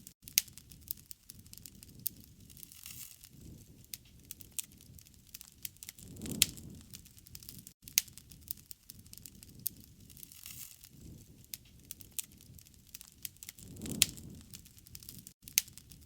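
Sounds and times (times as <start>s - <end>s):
wood fire crackling and popping: 0.0s - 16.0s
low soft rumble: 6.0s - 7.0s, 13.6s - 14.7s.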